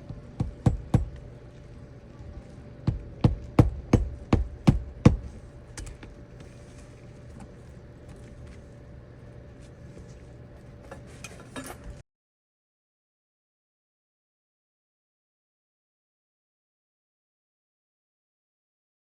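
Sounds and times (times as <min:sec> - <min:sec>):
faint steady hum: 0:00.0 - 0:12.0
sharp knocks: 0:02.9 - 0:05.3.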